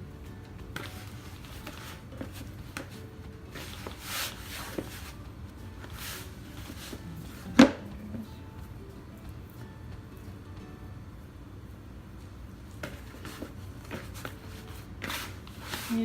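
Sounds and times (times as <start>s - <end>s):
hands kneading dough: 0.5s - 9.6s, 12.7s - 16.0s.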